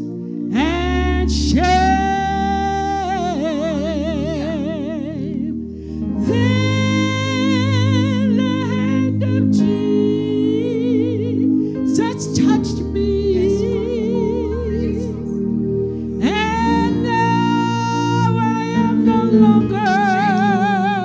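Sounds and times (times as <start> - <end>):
solo gospel voice singing: 0.0 - 21.0
sustained low accompaniment chords: 0.0 - 21.0.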